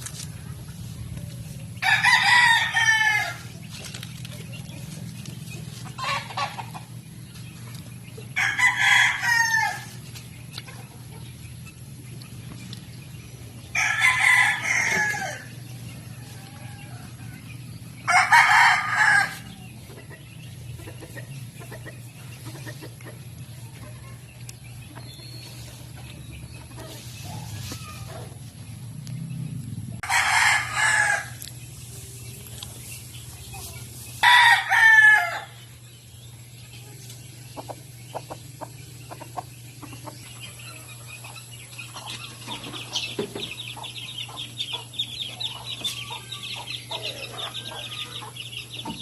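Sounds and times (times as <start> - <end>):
steady low hum: 0.0 - 49.0
rooster crowing: 1.8 - 3.5, 8.4 - 9.9, 13.7 - 15.5, 18.1 - 19.6, 30.0 - 31.4, 34.2 - 35.6.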